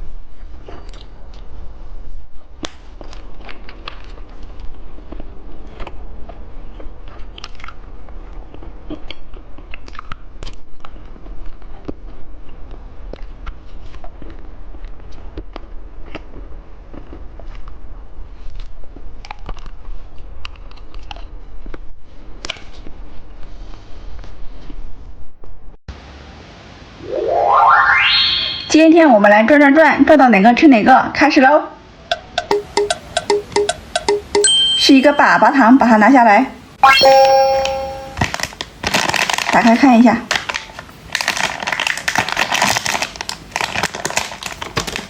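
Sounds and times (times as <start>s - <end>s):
candy crunching and chewing: 2.7s - 21.9s, 38.2s - 45.0s.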